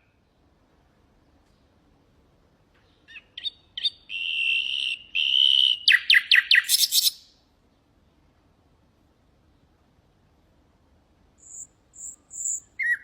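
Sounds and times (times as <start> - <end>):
nightingale singing: 2.8 - 7.4, 11.4 - 13.0.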